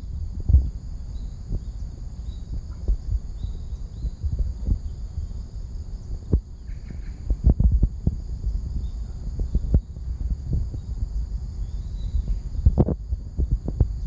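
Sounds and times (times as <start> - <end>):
high insect drone: 0.0 - 14.0
thumps and rumble on microphone: 0.0 - 14.0
faint bird chirps: 1.0 - 5.4, 6.2 - 7.4, 8.7 - 10.0, 11.6 - 12.8.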